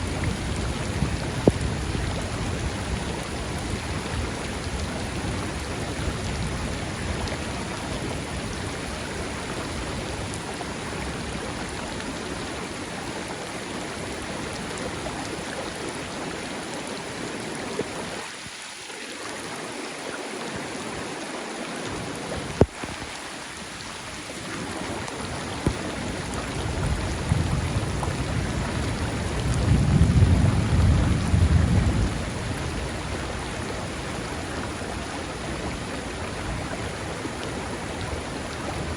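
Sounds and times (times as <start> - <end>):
rushing water: 0.0 - 38.9
steady rain: 0.0 - 38.9
thunder rolling: 25.7 - 35.8.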